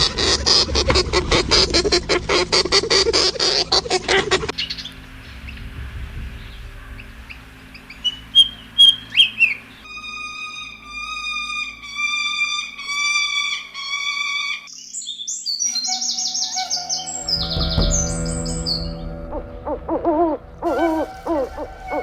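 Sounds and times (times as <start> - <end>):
faint low hum: 0.0 - 12.6
songbirds chirping and whistling: 2.3 - 5.6, 6.2 - 22.0.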